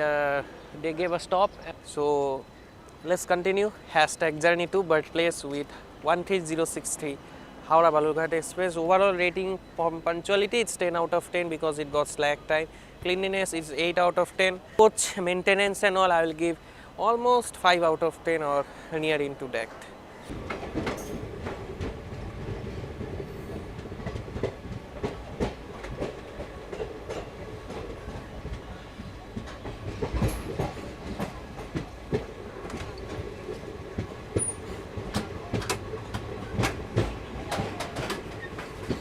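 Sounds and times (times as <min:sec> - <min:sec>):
train running hum: 0:19.8 - 0:39.0
train wheels clacking over rail joints: 0:20.3 - 0:39.0.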